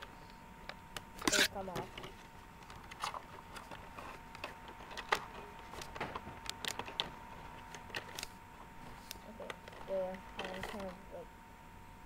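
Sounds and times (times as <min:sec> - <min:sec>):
plastic handling: 0:01.3 - 0:11.0.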